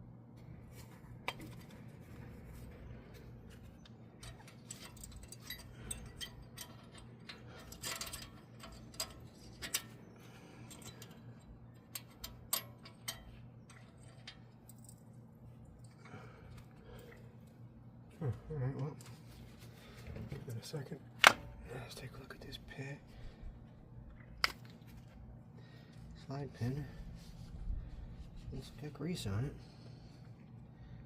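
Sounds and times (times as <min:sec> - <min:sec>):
steady low hum: 0:00.0 - 0:31.0
metallic clicks of tools: 0:03.8 - 0:10.0, 0:10.7 - 0:15.0.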